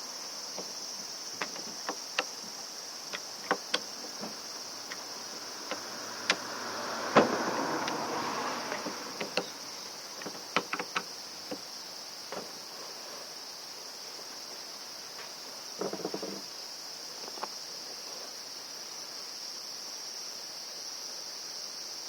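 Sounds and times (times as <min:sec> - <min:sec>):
insect chirring: 0:00.0 - 0:19.6
clicks and knocks of tools: 0:03.1 - 0:08.0, 0:08.7 - 0:09.5, 0:10.2 - 0:11.6.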